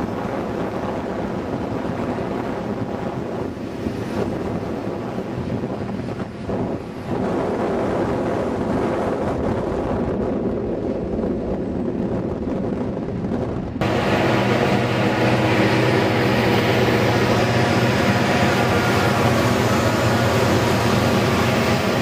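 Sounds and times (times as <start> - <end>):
diesel locomotive engine drone: 11.1 - 22.0.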